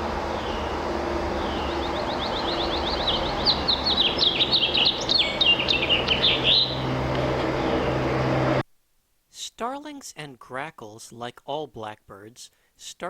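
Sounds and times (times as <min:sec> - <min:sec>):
steady low background hum: 0:00.0 - 0:08.6
finch singing warbling song: 0:00.3 - 0:07.0.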